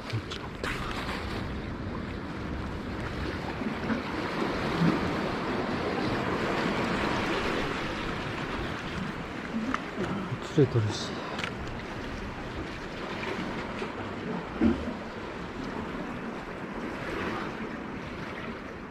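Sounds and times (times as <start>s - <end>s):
wind buffeting microphone: 0.0s - 18.3s
waves washing among concrete blocks: 0.0s - 18.9s.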